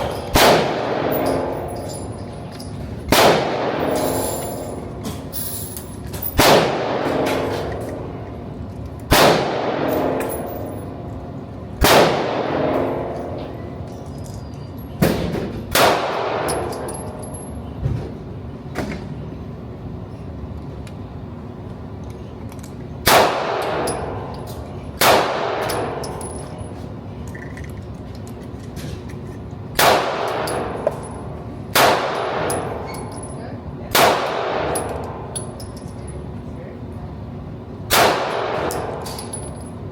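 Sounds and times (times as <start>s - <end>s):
gunshots with echo: 0.0s - 1.7s, 3.1s - 4.3s, 11.8s - 13.2s, 37.9s - 39.0s.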